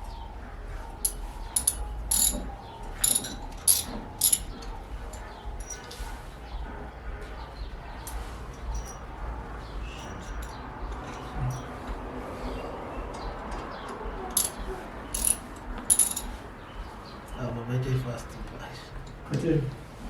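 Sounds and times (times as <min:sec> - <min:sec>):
metal hardware clicking and scraping: 0:01.0 - 0:06.1, 0:09.9 - 0:11.8, 0:14.4 - 0:16.4.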